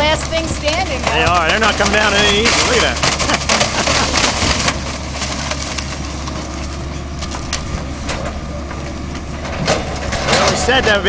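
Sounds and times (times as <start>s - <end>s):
debris clattering: 0.0s - 11.0s
demolition machine engine running: 0.0s - 11.0s
sharp cracks and knocks: 0.6s - 6.4s.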